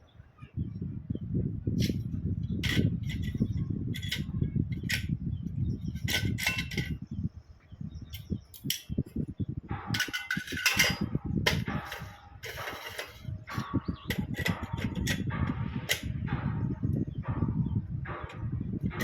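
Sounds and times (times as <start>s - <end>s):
metal scraping rattle: 1.8s - 5.2s, 5.8s - 7.0s, 9.8s - 16.8s
metal parts clinking: 2.6s - 5.1s, 5.9s - 7.0s, 9.9s - 15.2s.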